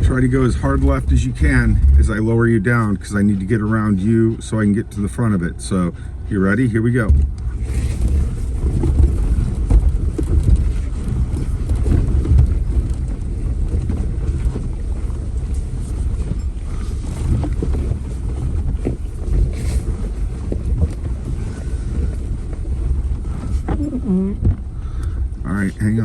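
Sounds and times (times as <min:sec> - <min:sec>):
knocks and bumps: 0:00.0 - 0:03.9, 0:07.0 - 0:25.4
wind on microphone: 0:00.0 - 0:04.1, 0:07.0 - 0:25.4
off-road vehicle rumbling: 0:00.0 - 0:26.0.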